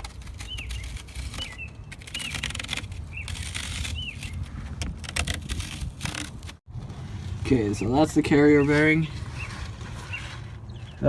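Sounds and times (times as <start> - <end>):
small bird chirping: 0.4 - 4.5, 7.6 - 11.0.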